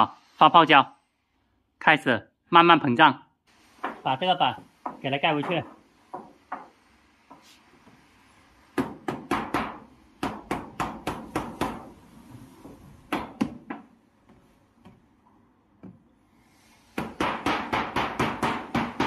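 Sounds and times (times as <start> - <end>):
knocks and taps on panel: 4.8 - 7.4.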